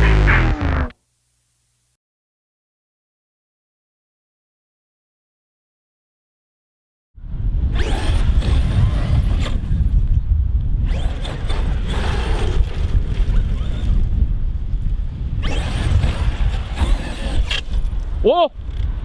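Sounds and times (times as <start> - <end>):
electric motor whining: 0.0 - 1.0, 7.7 - 10.2, 10.8 - 14.2, 15.0 - 18.9.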